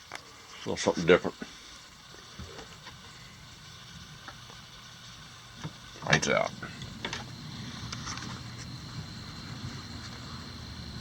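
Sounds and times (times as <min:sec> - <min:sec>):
faint thin high whine: 0:00.0 - 0:11.0
storm wind rumbling: 0:03.3 - 0:11.0.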